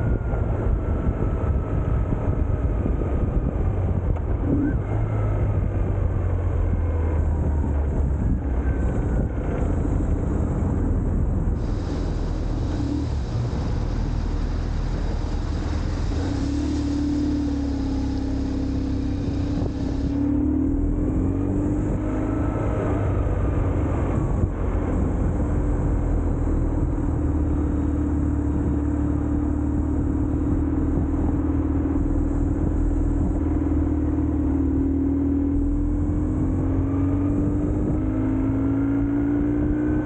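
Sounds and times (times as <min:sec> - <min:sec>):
motorcycle engine running: 0:00.0 - 0:21.0
wind rush over microphone: 0:00.0 - 0:40.0.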